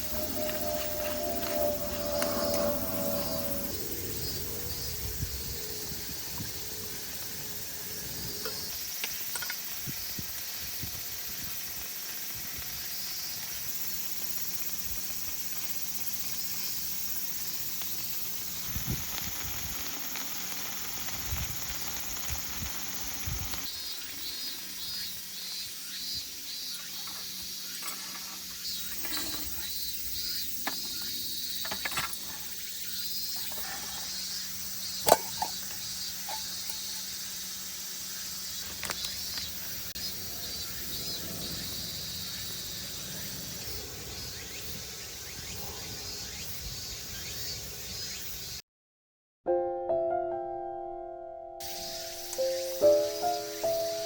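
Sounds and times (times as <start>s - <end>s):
meat sizzling in a pan: 8.6s - 27.7s, 51.6s - 54.0s.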